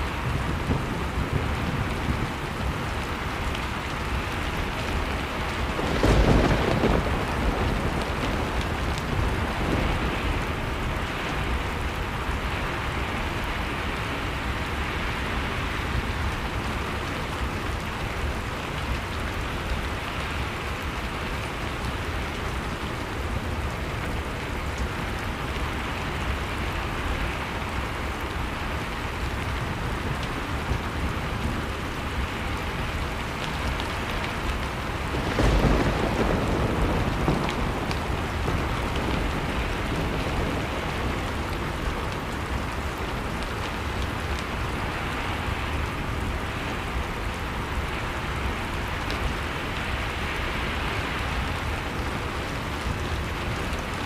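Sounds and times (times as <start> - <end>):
fire crackling: 0.0 - 15.2, 15.8 - 54.0.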